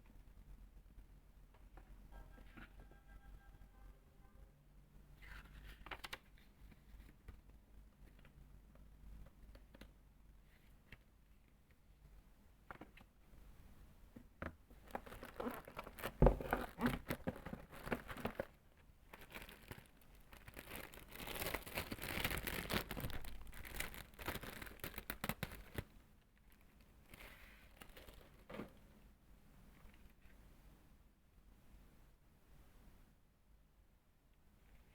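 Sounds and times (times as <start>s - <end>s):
packaging rustling: 14.8s - 25.9s, 26.5s - 28.6s.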